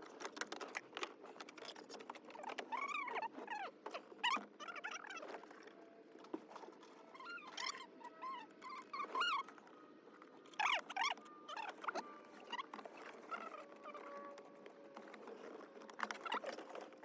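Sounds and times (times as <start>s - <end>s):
animal chirping and squeaking: 2.3s - 5.8s, 6.5s - 14.3s.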